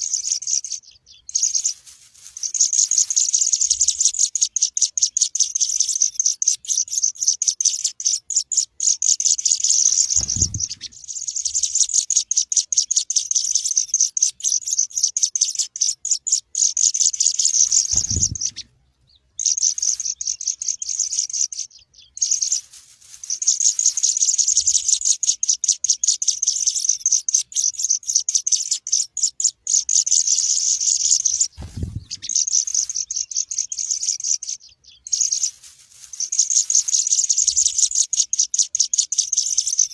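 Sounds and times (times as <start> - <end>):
sparrow chicks chirping: 0.0 - 39.9
dull low thumps: 10.2 - 11.0, 17.9 - 18.6, 31.6 - 32.3.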